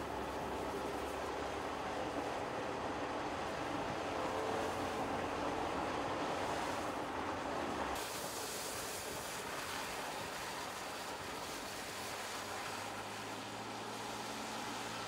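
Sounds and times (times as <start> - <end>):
tyre rush on wet road: 0.0 - 15.0
tyre spray hiss: 8.0 - 12.7.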